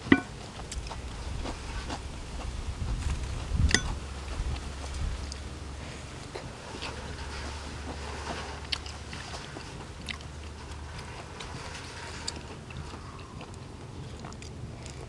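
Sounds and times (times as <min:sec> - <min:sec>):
person chewing food: 0:06.2 - 0:15.0.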